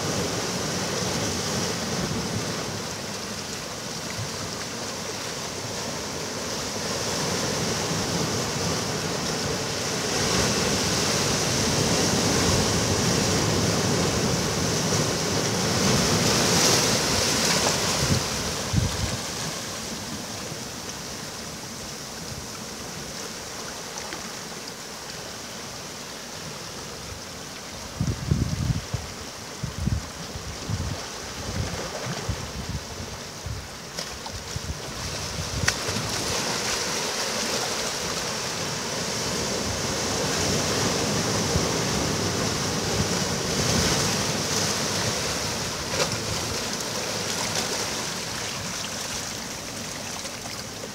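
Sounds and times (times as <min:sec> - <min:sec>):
ocean waves breaking: 0:00.0 - 0:21.8, 0:34.8 - 0:50.9
wind buffeting microphone: 0:17.9 - 0:19.3.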